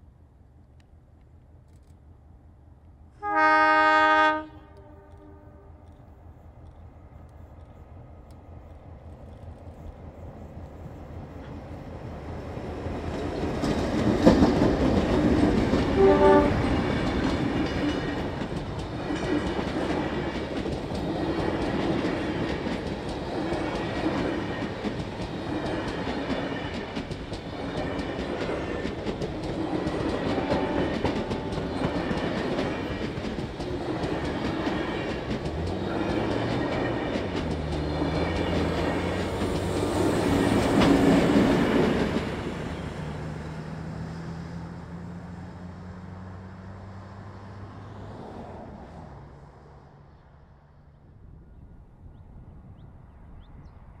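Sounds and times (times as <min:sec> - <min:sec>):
diesel locomotive engines: 0:00.0 - 0:54.0
wheels clickety-clack over rail joints: 0:04.7 - 0:45.6.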